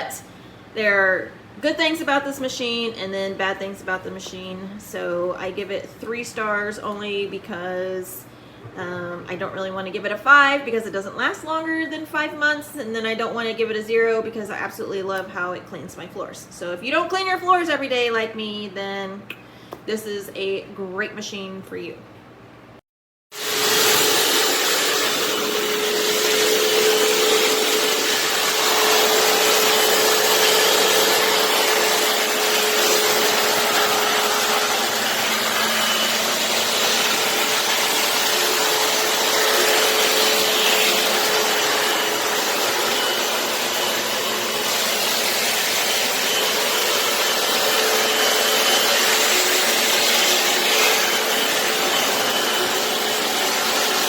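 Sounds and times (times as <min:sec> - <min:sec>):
floor cleaner motor and suction: 0:23.4 - 0:54.0.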